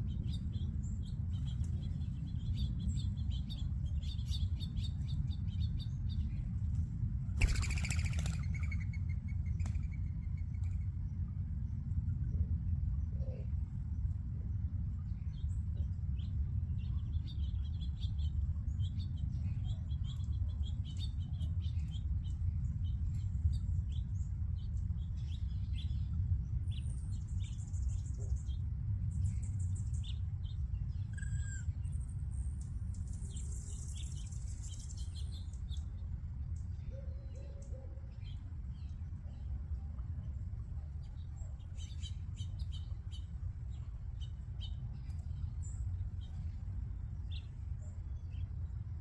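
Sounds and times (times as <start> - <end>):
steady low rumble: 0.0 - 49.0
flock of birds chirping: 7.4 - 11.0, 15.3 - 49.0.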